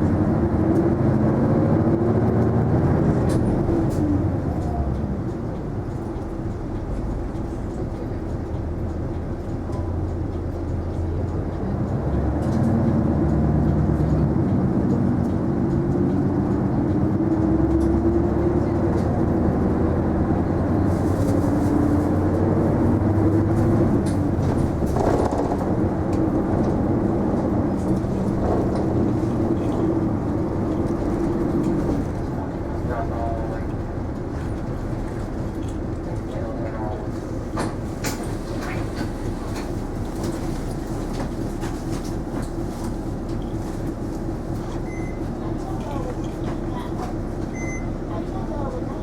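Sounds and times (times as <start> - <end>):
bus engine drone: 0.0 - 49.0.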